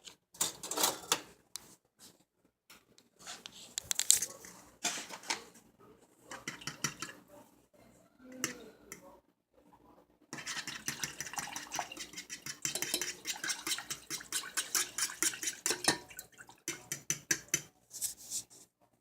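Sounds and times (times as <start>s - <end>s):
kitchen utensil scraping cookware: 4.8s - 5.5s, 10.4s - 16.1s.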